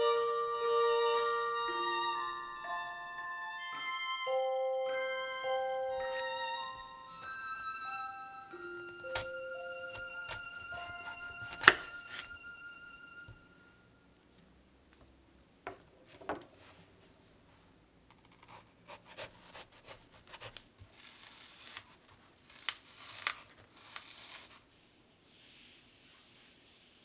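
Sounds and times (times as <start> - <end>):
rubbing and rustling: 9.0 - 12.4.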